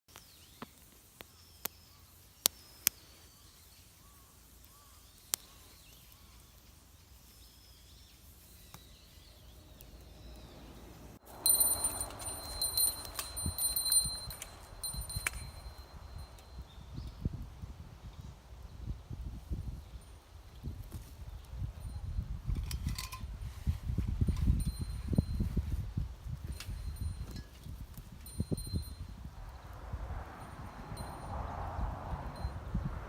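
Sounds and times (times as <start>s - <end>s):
faint birdsong: 0.1s - 19.0s
small bell jingling: 11.3s - 16.7s, 24.3s - 25.7s, 26.4s - 29.2s, 30.4s - 31.4s.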